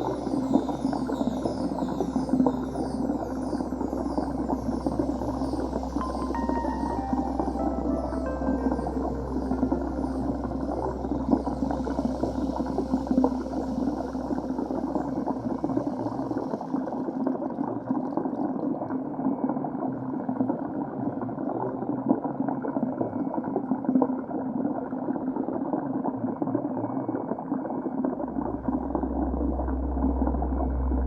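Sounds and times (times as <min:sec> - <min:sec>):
deep rumble: 0:00.0 - 0:16.4, 0:28.3 - 0:31.0
steady low hum: 0:00.0 - 0:16.5, 0:28.4 - 0:31.0
underwater bubbling and rushing water: 0:00.0 - 0:31.0.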